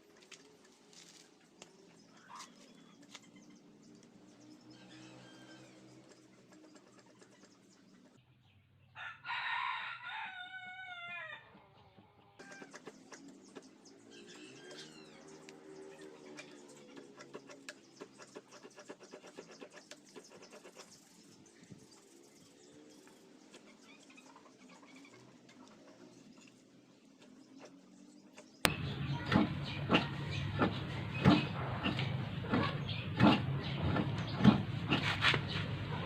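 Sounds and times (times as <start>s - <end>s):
rooster crowing: 9.0s - 11.6s.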